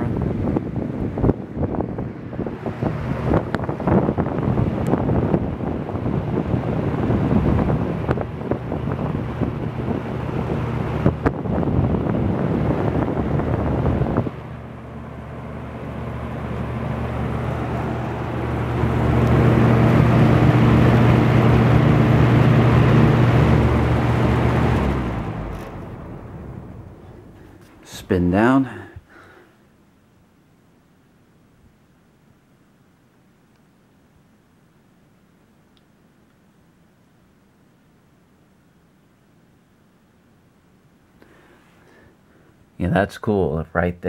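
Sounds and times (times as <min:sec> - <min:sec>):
fan blades rushing: 0:00.0 - 0:29.4
fan wind buffeting microphone: 0:00.0 - 0:29.5
fan motor hum: 0:00.0 - 0:43.6.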